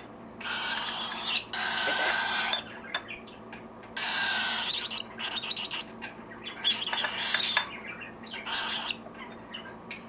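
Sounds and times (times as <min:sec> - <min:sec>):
cockatiel begging calls: 0:00.4 - 0:02.6, 0:04.0 - 0:05.9, 0:08.3 - 0:09.0.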